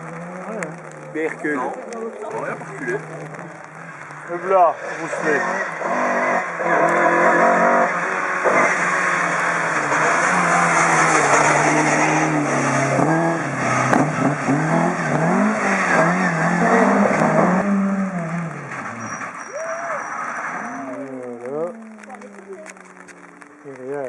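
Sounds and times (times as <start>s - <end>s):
sharp crack: 0.0s - 7.2s, 16.8s - 24.0s
rally car engine revving: 0.0s - 24.0s.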